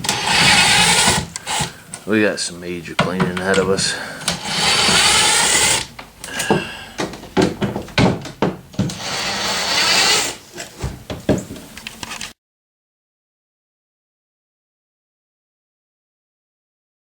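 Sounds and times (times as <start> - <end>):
wood rasping scrapes: 0.0 - 1.8, 3.3 - 5.9, 8.8 - 10.4
wood knocks and clatter: 5.9 - 9.1, 10.7 - 11.8.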